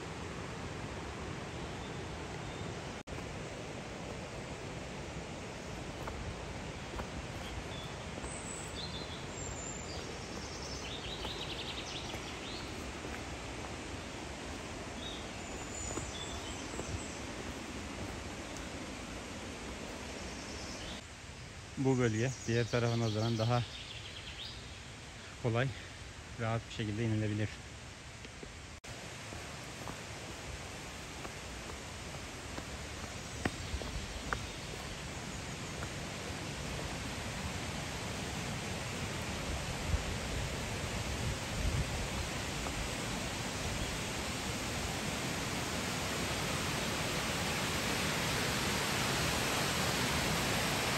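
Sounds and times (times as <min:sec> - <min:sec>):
waterfall rushing: 0:00.0 - 0:21.0, 0:28.9 - 0:50.9
small birds chirping: 0:05.4 - 0:21.0, 0:29.1 - 0:36.4.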